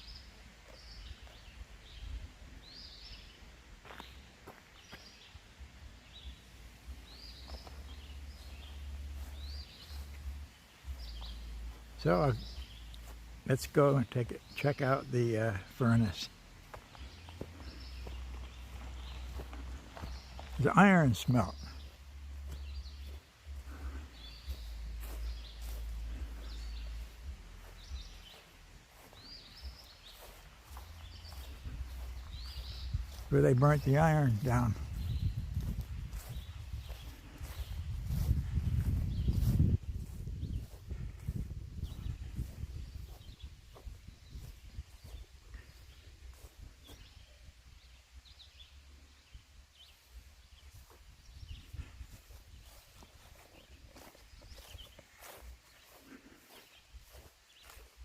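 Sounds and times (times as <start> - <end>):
songbird singing: 0.0 - 58.0
bird chirping: 6.1 - 58.0
wind rumble on microphone: 29.2 - 33.3, 34.5 - 55.6.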